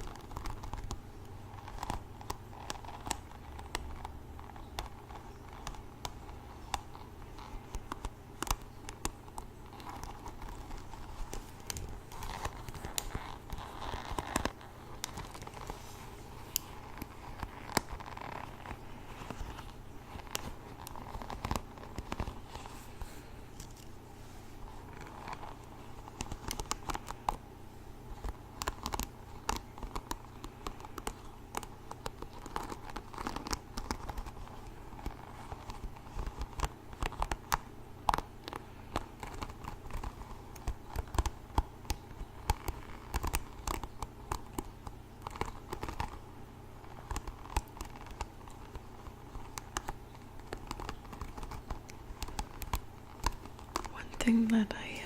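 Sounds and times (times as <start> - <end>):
hairbrush scratching: 0.0 - 27.4.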